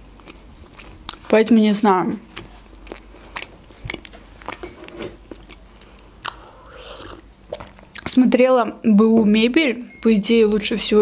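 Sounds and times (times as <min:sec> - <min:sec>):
person chewing with wet smacks: 0:00.0 - 0:08.2
sip from a mug: 0:06.6 - 0:07.2.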